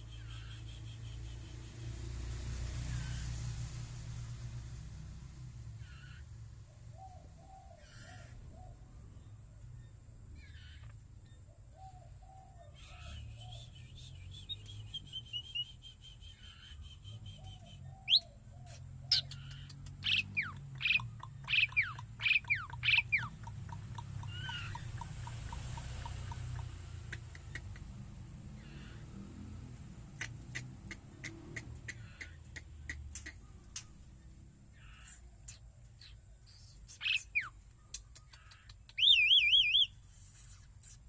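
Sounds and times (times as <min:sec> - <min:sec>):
sharp bird chirps and whistles: 0:12.8 - 0:23.4, 0:34.8 - 0:41.0.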